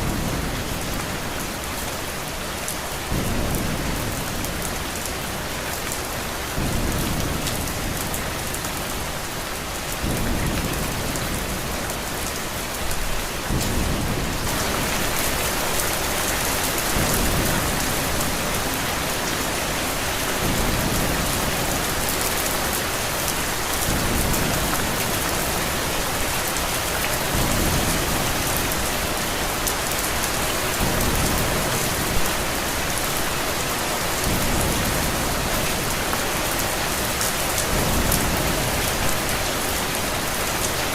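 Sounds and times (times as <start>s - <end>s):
heavy rain: 0.0s - 40.9s
low thunder rumbles: 6.0s - 9.1s, 9.9s - 25.9s.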